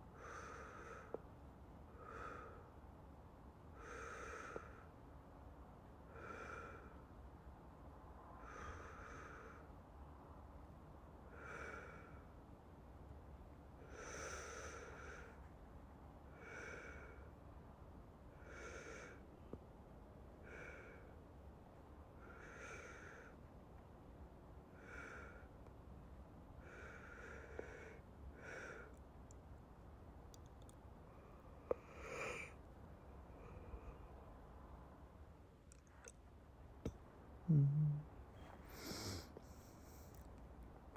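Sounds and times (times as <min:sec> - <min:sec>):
man breathing slowly: 0:00.1 - 0:01.3, 0:01.9 - 0:02.8, 0:03.7 - 0:05.0, 0:06.0 - 0:07.1, 0:08.3 - 0:10.0, 0:11.2 - 0:12.4, 0:13.8 - 0:15.5, 0:16.3 - 0:17.4, 0:18.3 - 0:19.6, 0:20.4 - 0:21.2, 0:22.1 - 0:23.5, 0:24.7 - 0:25.6, 0:26.6 - 0:29.0, 0:30.6 - 0:34.5, 0:38.4 - 0:40.3.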